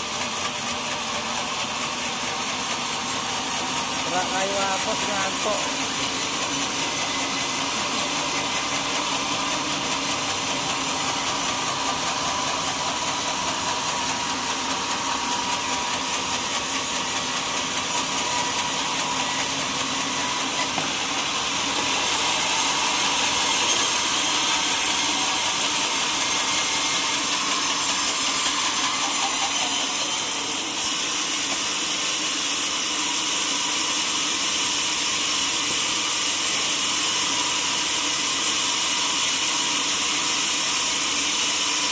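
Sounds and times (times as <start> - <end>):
sawmill saw cutting wood: 0.0 - 41.9.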